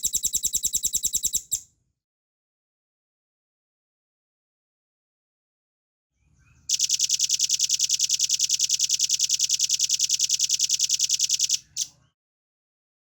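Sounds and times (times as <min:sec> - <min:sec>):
bird singing rapid trill: 0:00.0 - 0:01.6, 0:06.7 - 0:12.0.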